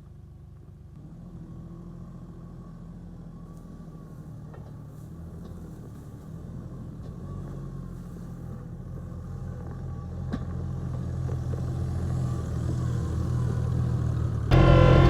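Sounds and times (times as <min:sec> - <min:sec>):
diesel engine running: 0:13.2 - 0:15.0.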